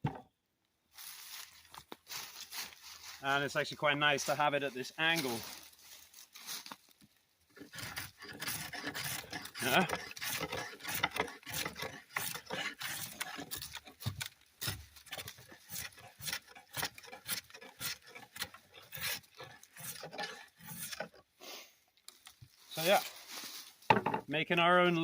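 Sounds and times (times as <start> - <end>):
drawknife shaving wood: 7.6 - 21.3.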